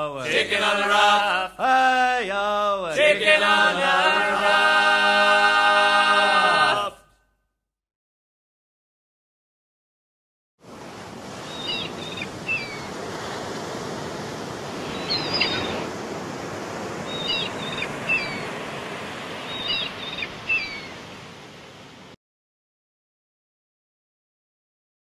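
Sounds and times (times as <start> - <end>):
surf washing: 10.6 - 22.2
small bird chirping: 14.9 - 15.8.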